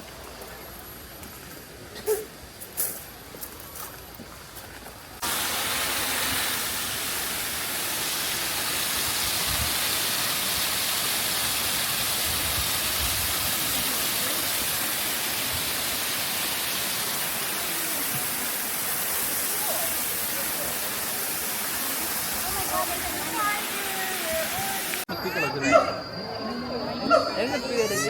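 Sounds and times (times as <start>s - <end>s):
falling water rushing: 5.2s - 25.1s.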